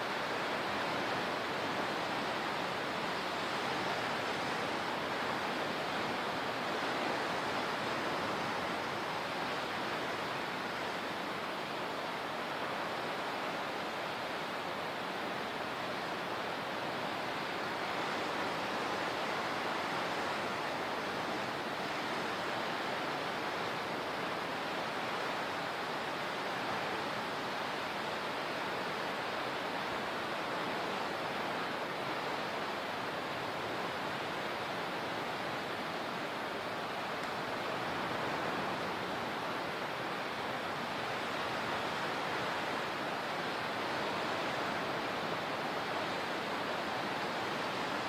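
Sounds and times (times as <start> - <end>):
rushing water: 0.0 - 48.0.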